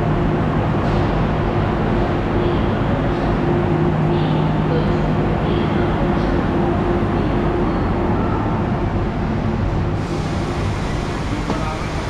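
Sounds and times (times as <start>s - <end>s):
standing train hum: 0.0s - 12.0s
hiss: 10.0s - 12.0s.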